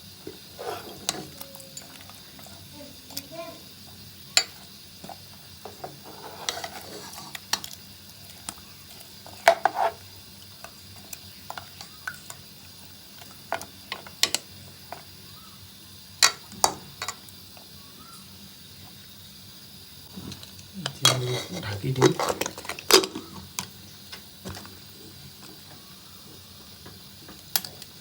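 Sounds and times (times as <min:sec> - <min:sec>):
spoon scraping a cooking pot: 0:00.3 - 0:02.6, 0:04.4 - 0:07.7, 0:08.4 - 0:10.1, 0:20.1 - 0:23.6.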